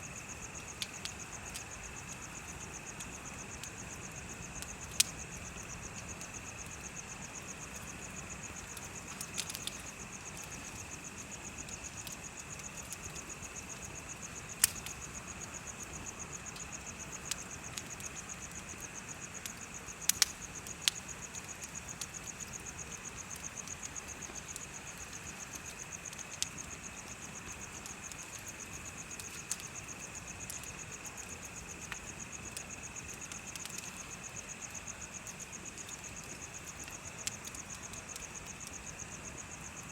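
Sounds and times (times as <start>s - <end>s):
bonfire crackling: 0.0s - 39.9s
insects trilling: 0.0s - 39.9s
lower insect chirp: 0.0s - 39.9s.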